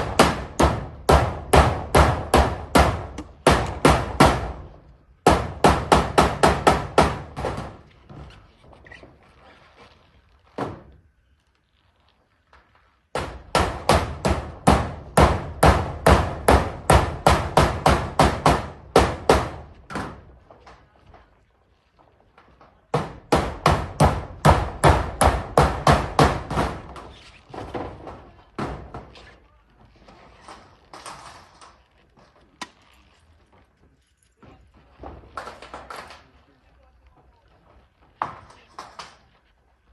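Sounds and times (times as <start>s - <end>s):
hammer striking nails into metal roof: 0.0s - 7.9s, 13.1s - 20.4s, 22.9s - 29.2s.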